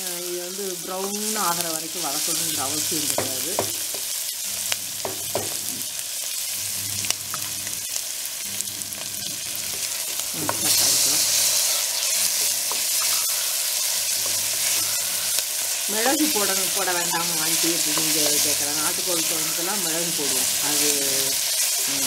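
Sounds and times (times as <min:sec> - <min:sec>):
onions sizzling in hot oil: 0:00.0 - 0:22.0
wooden spatula scraping a pot: 0:09.2 - 0:15.4.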